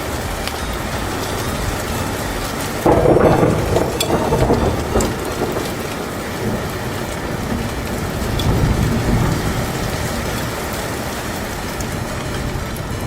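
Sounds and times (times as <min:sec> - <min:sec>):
low rumbles: 0:00.0 - 0:13.0
rain-like noise: 0:00.0 - 0:13.0.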